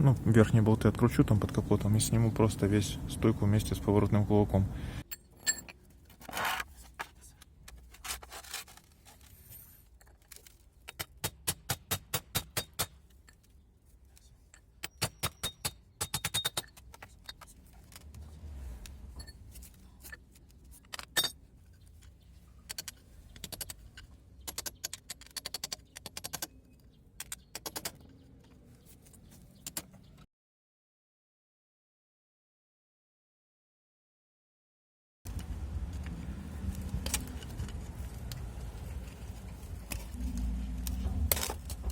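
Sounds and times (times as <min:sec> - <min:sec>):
metal tools clinking and scraping: 0:05.0 - 0:07.2, 0:07.8 - 0:11.0, 0:14.3 - 0:18.2, 0:19.1 - 0:25.7.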